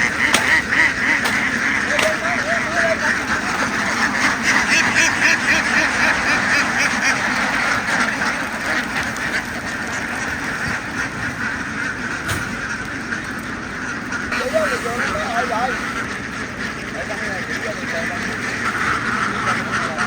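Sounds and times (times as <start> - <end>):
flock of ducks quacking: 0.0 - 20.0.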